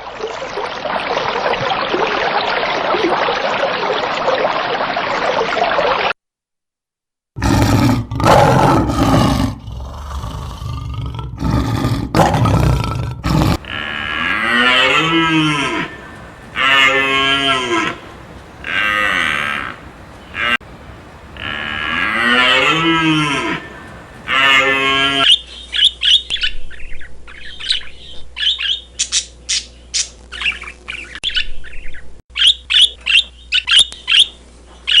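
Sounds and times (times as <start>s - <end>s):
rough low calls: 13.3s - 25.3s
cattle mooing: 13.4s - 25.2s
steady hiss-like noise: 13.6s - 25.2s.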